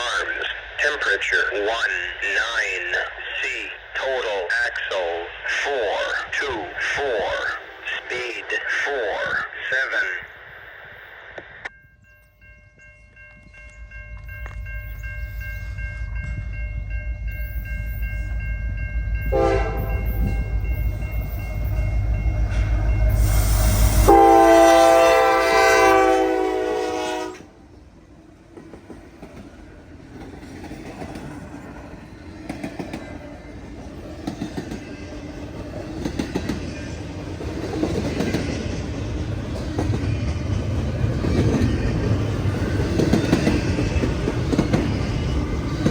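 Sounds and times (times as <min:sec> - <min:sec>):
train air horn: 0:19.3 - 0:20.2, 0:23.1 - 0:27.6.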